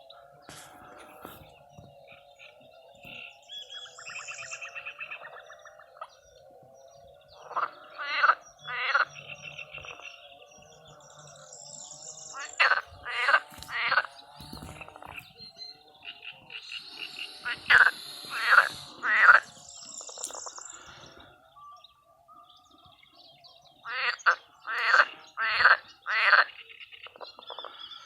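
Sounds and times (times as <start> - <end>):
frogs calling: 0.0 - 22.6, 23.8 - 28.0
loud frog croaks: 7.4 - 10.2, 12.3 - 15.2, 16.0 - 20.9, 23.8 - 27.8.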